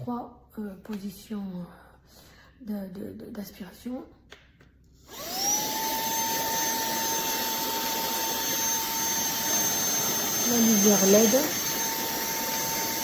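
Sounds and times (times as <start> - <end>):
handheld vacuum cleaner whine: 5.0 - 13.0.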